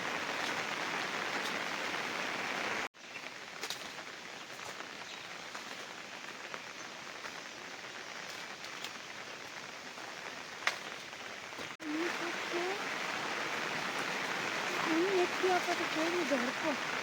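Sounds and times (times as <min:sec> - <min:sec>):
louder raindrops: 0:00.0 - 0:17.0
rain falling: 0:00.0 - 0:17.0.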